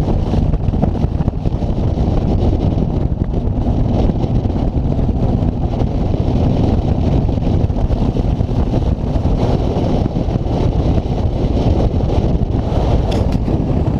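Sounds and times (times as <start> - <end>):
road noise: 0.0 - 13.9
wind buffeting microphone: 0.0 - 13.9.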